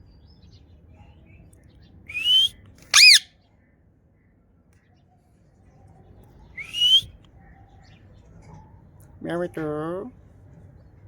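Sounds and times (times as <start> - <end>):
parrot whistling: 2.1 - 3.3, 6.6 - 7.0.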